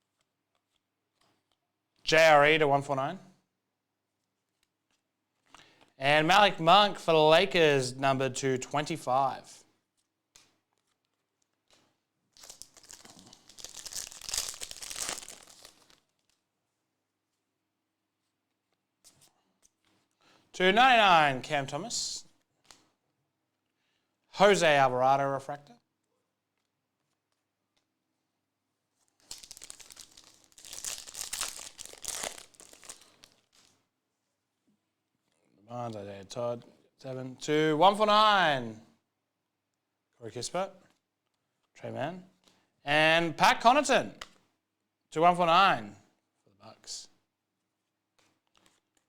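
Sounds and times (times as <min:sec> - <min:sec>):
plastic wrapper crinkling: 0:10.0 - 0:16.5, 0:28.9 - 0:33.9, 0:48.1 - 0:49.0.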